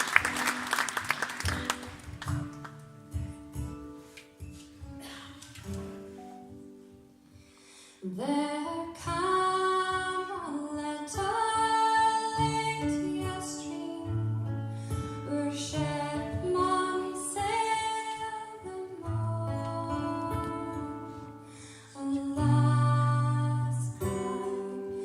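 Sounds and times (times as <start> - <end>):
folk band playing live: 0.0 - 6.1
woman singing: 8.0 - 14.5, 15.1 - 25.0.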